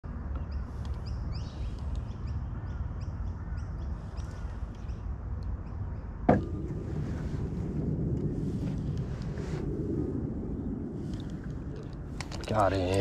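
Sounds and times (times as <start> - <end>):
wind rumble on microphone: 0.0 - 13.0
birds chirping: 0.2 - 6.9.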